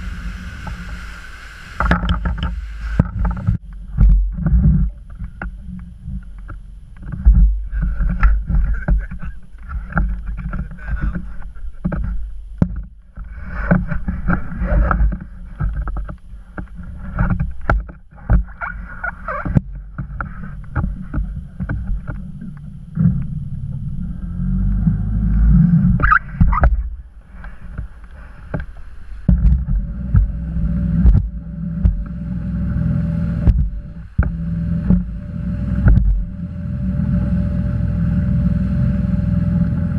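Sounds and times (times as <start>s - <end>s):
motorboat engine: 0.0s - 39.9s
wind buffeting microphone: 0.0s - 39.9s
sharp knocks and bumps: 1.8s - 5.6s, 28.5s - 32.2s, 33.3s - 36.4s.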